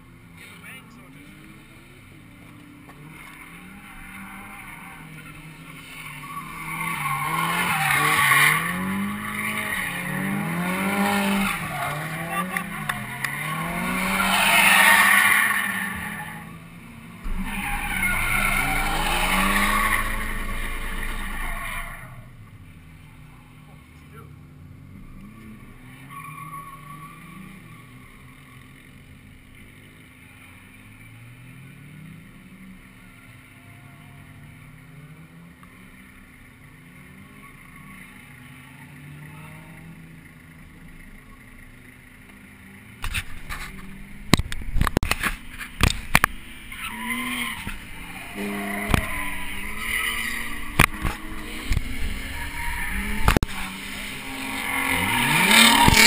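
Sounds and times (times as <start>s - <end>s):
distant car engines revving: 0.0s - 56.0s
tyres squealing: 3.9s - 22.3s, 46.4s - 56.0s.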